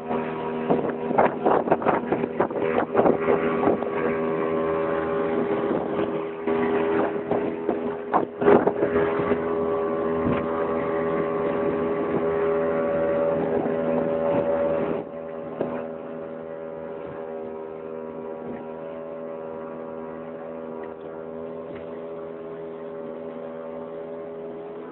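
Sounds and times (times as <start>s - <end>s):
wind noise: 0.0s - 17.4s
motorboat engine running: 0.0s - 24.9s.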